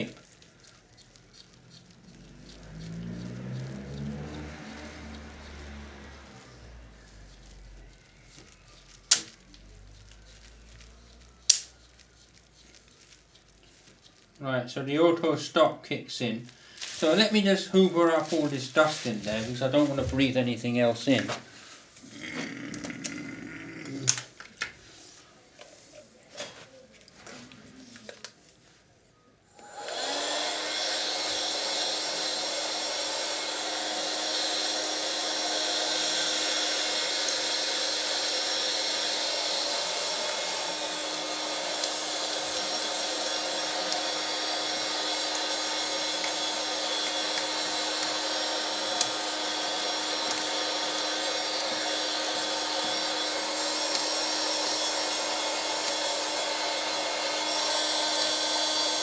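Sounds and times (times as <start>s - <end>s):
vacuum cleaner running: 2.0s - 9.4s, 16.8s - 21.8s, 29.5s - 59.0s.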